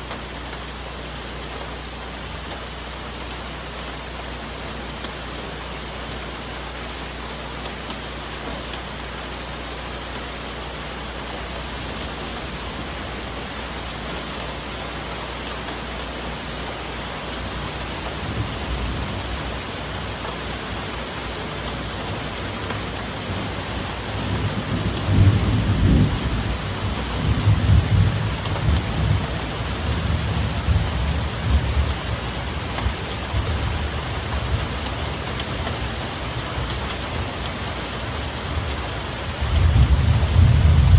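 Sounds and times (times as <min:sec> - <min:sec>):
rain on foliage: 0:00.0 - 0:40.9
thunder rumbling: 0:24.2 - 0:34.7, 0:39.4 - 0:40.9.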